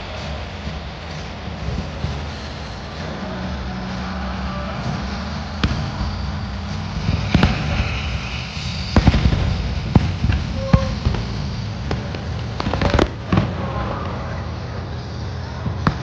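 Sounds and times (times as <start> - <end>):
fireworks exploding: 0.0 - 16.0
low background rumble: 0.0 - 16.0.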